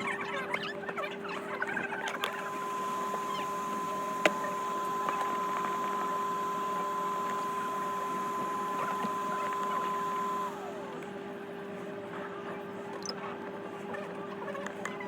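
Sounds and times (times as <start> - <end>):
small electric motor whining: 0.0 - 11.2.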